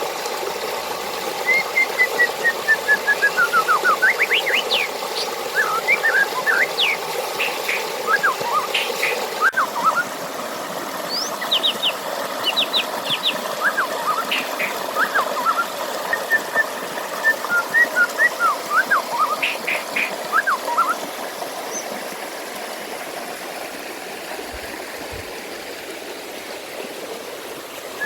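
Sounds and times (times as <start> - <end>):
flowing water rushing: 0.0 - 28.0
songbirds chirping: 4.1 - 9.6, 11.1 - 15.5, 19.0 - 20.9.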